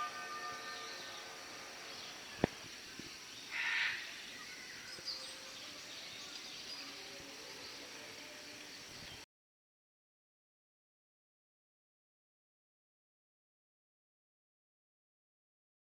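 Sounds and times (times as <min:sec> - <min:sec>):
faint bird chirps: 0:00.0 - 0:09.3.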